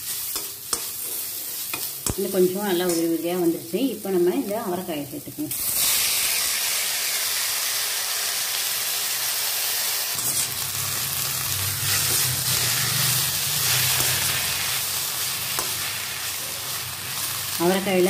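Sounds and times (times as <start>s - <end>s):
metal spatula stirring: 0.0s - 3.1s, 10.2s - 10.7s, 11.9s - 14.8s
food sizzling in hot oil: 0.0s - 18.0s.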